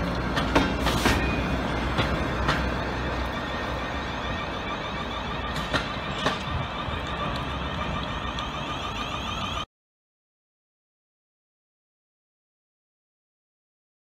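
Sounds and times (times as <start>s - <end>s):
wheel clicks over rail joints: 0.0s - 9.6s
wheels rumbling on rails: 0.0s - 9.7s
thin steady whine: 1.0s - 9.7s.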